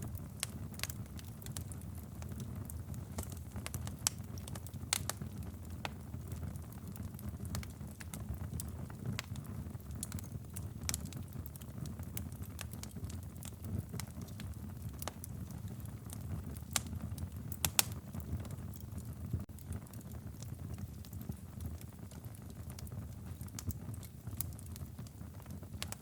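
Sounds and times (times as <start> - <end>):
sharp pops and snaps of fire: 0.0 - 26.0
wood fire crackling: 0.0 - 26.0.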